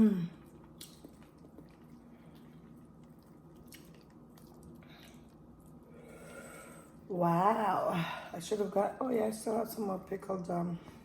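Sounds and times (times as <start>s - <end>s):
faint chewing: 0.3s - 7.0s
wet mouth clicks: 0.6s - 1.9s.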